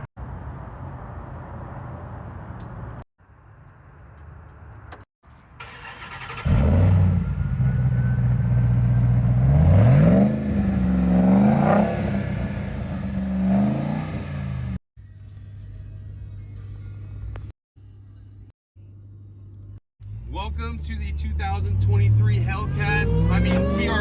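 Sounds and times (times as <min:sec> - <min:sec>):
engine rumbling and revving: 0:05.6 - 0:14.8, 0:20.0 - 0:24.0.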